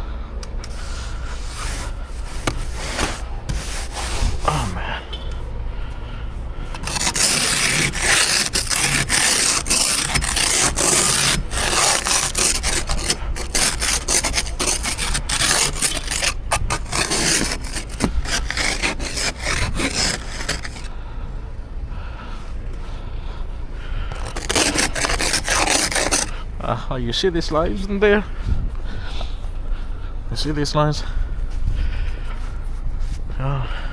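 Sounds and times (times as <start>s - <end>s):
ice scraping off a car: 0.6s - 5.0s, 6.6s - 20.9s, 24.1s - 26.4s.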